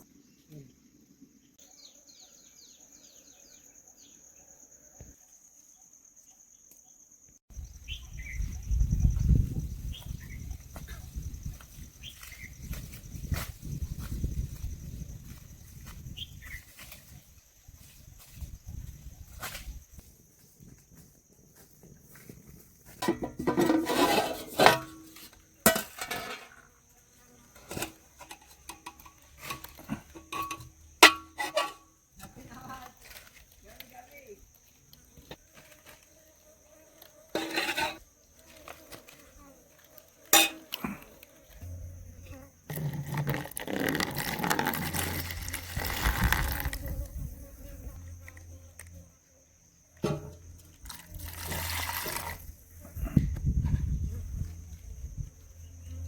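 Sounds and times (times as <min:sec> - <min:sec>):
insects droning: 0:00.0 - 0:56.0
bird chirping: 0:07.6 - 0:08.9
spoon scraping a metal pot: 0:23.0 - 0:26.5, 0:27.6 - 0:31.9, 0:37.3 - 0:38.0, 0:40.3 - 0:40.8.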